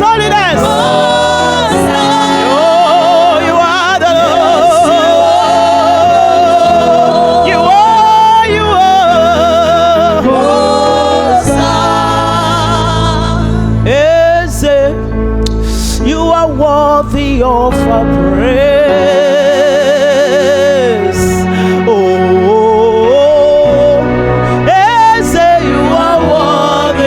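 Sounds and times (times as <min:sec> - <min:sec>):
deep bass: 0:00.0 - 0:27.0
instrumental backing: 0:00.0 - 0:27.0
person singing gospel: 0:00.0 - 0:27.0.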